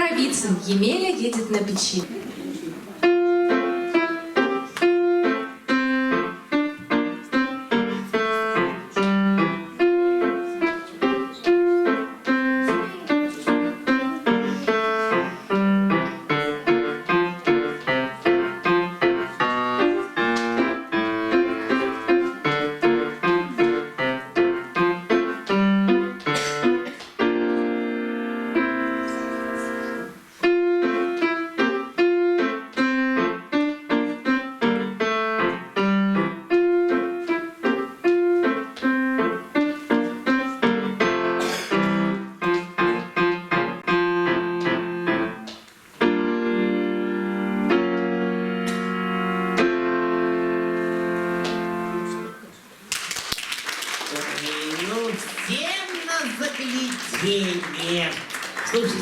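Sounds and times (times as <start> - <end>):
lively solo piano piece: 2.9 - 52.5, 54.3 - 59.0.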